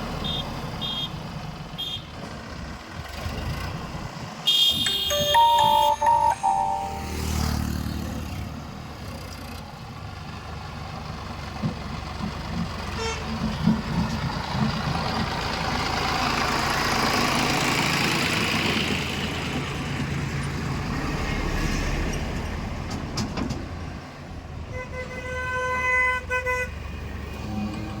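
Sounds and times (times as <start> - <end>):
vehicle horn honking: 4.5 - 7.4.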